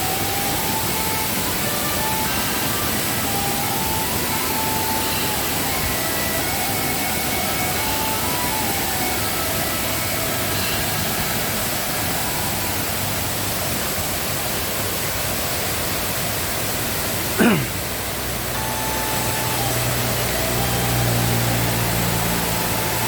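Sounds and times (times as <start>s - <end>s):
loud sound sliding down in pitch: 0.0s - 13.6s, 18.6s - 23.0s
waterfall rushing: 0.0s - 23.0s.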